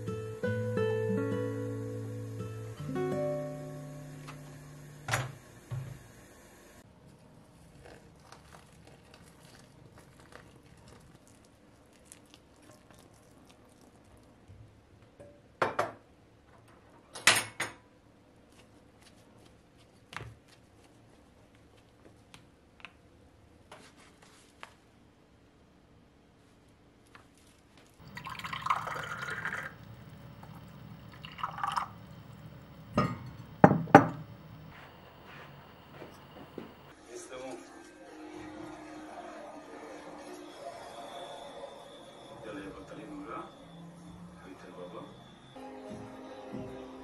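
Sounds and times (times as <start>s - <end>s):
soft guitar music: 0.0s - 5.1s
household objects knocking and clinking: 32.9s - 34.7s.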